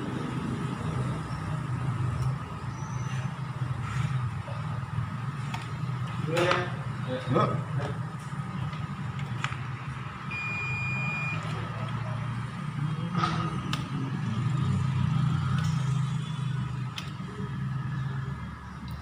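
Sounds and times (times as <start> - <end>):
multimeter continuity beep: 10.3 - 11.6.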